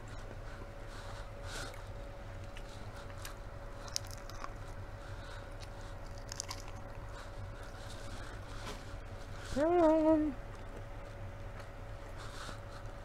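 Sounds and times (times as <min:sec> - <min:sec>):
faint steady hum: 0:00.0 - 0:13.0
chewing corn crunches: 0:00.1 - 0:08.7.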